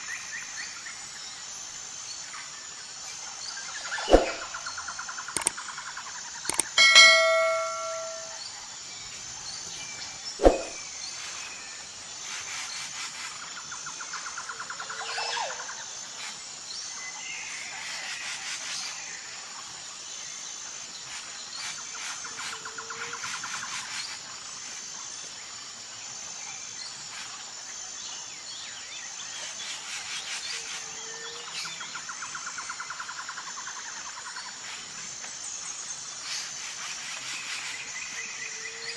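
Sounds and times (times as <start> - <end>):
sharp knock: 6.5 - 8.3
bell-like ding: 6.5 - 8.4.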